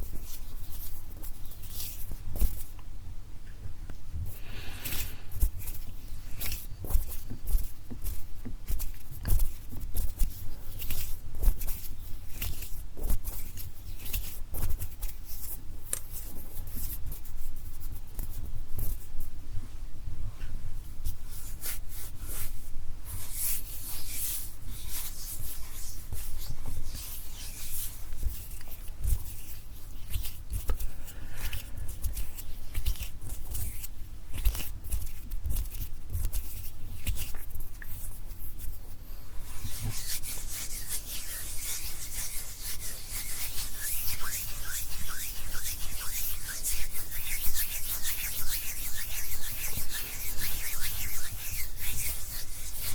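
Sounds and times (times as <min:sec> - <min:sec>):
hands swishing: 0:23.2 - 0:52.9
fingers tapping and rubbing: 0:39.5 - 0:52.9.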